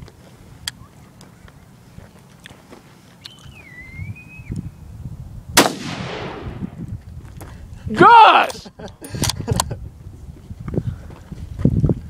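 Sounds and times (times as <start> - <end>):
rifle shot with echo: 5.6 - 6.8.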